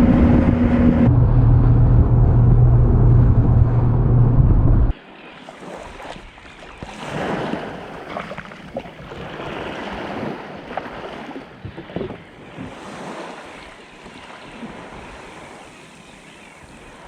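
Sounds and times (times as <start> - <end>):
vehicle engine drone: 0.0 - 4.9
wind on microphone: 0.0 - 5.0
water splashing: 4.9 - 16.2.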